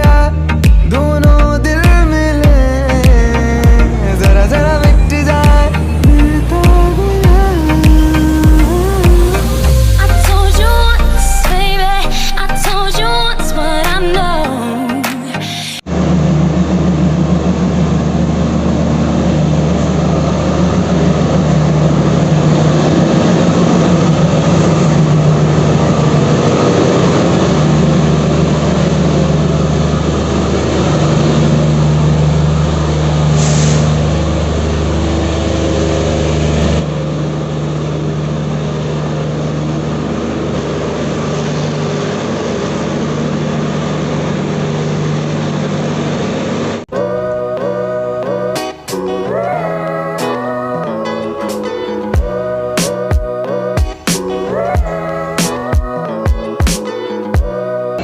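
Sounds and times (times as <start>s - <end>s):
train running: 0.0s - 57.8s
rail rumbling: 0.0s - 58.0s
brief hiss: 33.4s - 33.9s.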